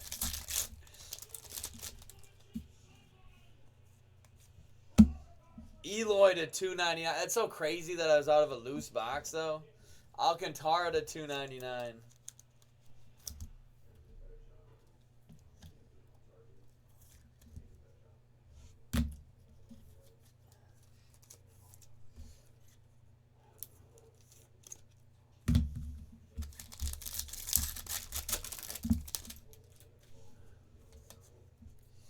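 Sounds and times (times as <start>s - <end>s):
card wrapping torn and crinkled: 0.0s - 2.3s, 26.4s - 29.9s.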